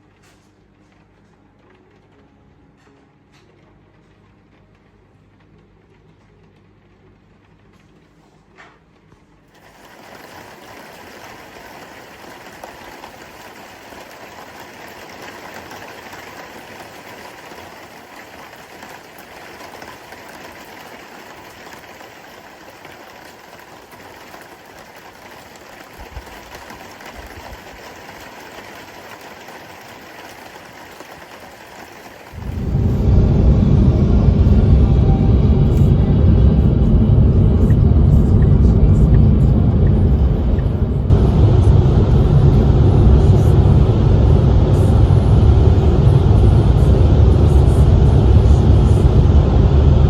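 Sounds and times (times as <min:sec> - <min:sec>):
steady rushing noise: 0:09.6 - 0:50.0
loud low rumble: 0:32.4 - 0:50.0.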